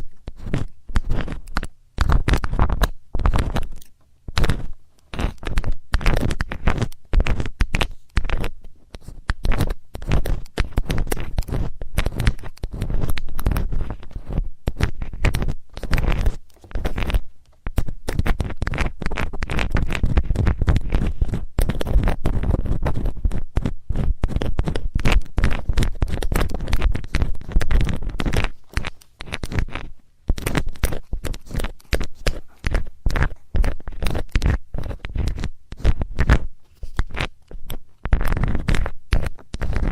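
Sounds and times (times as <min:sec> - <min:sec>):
metal tool scratching and scraping: 0:00.0 - 0:17.2, 0:38.1 - 0:39.9.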